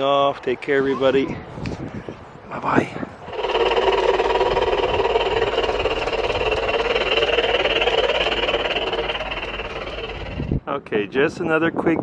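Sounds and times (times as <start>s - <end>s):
motor humming and whining: 3.3s - 10.6s.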